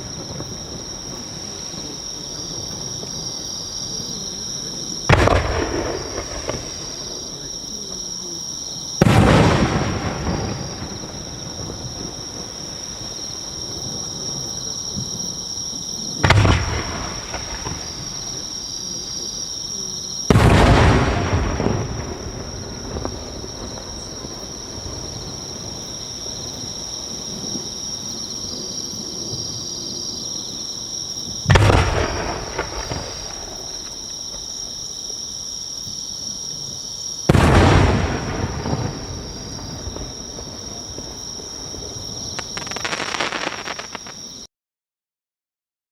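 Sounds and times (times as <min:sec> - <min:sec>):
firework shells booming: 0:00.0 - 0:08.1, 0:09.0 - 0:15.2, 0:16.2 - 0:19.6, 0:20.2 - 0:27.6, 0:31.3 - 0:35.0, 0:37.2 - 0:44.4.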